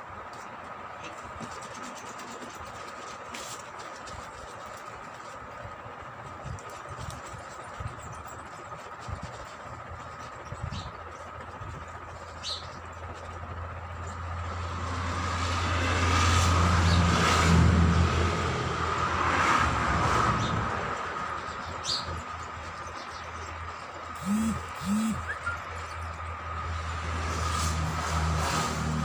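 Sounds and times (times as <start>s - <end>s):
vehicle driving past: 14.1s - 21.4s, 24.2s - 25.4s, 26.5s - 29.0s
bird chirping: 24.2s - 26.0s.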